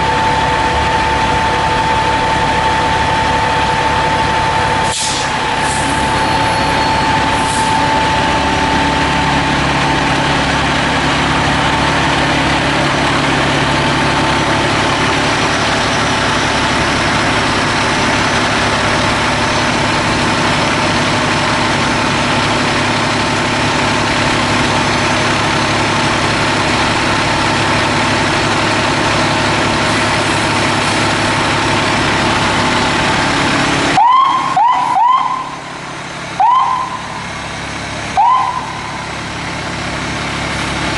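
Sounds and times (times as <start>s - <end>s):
diesel engine running: 0.0s - 40.9s
electronic siren yelps: 34.0s - 35.7s, 36.4s - 37.2s, 38.2s - 39.0s.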